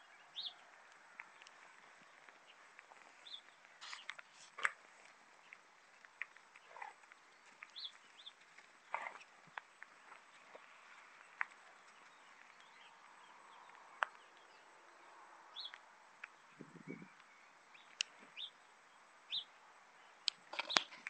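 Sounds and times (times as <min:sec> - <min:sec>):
faint outdoor hiss: 0:00.0 - 0:21.0
sharp clicks: 0:20.2 - 0:21.0.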